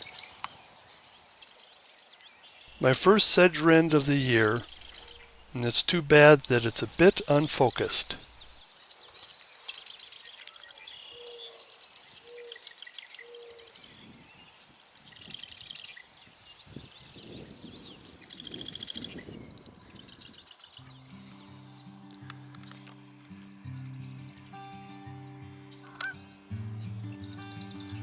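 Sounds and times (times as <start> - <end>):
wren chattering trills: 2.7 - 8.6
music: 20.8 - 28.0.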